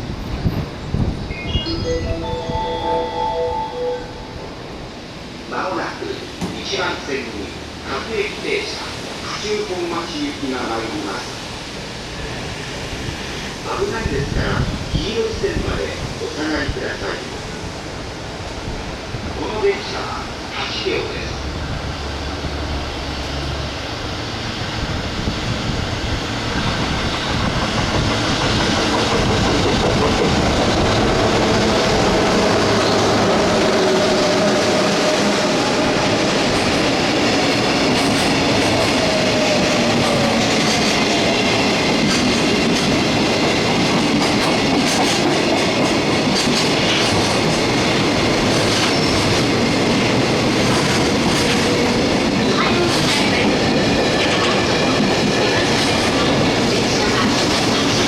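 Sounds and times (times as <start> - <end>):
freight train rumbling past: 0.0 - 58.0
wheels clacking over rail joints: 36.4 - 58.0.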